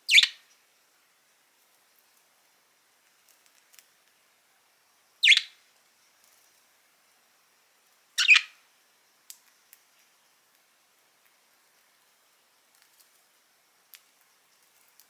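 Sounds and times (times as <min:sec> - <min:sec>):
budgerigar chirps: 0:00.1 - 0:00.4, 0:05.2 - 0:05.6, 0:08.2 - 0:08.5.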